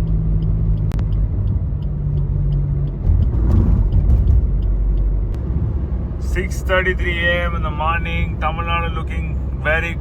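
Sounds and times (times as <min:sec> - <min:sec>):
faint regular ticking: 0:00.0 - 0:05.4
car engine and road rumble: 0:00.0 - 0:10.0.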